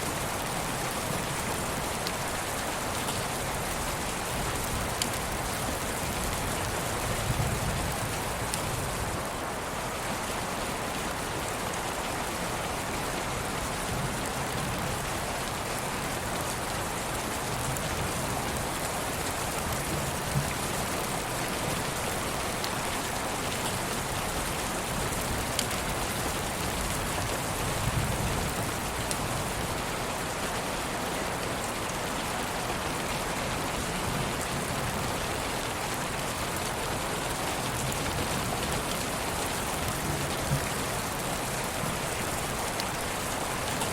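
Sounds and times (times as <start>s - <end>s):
steady rain hiss: 0.0s - 43.9s.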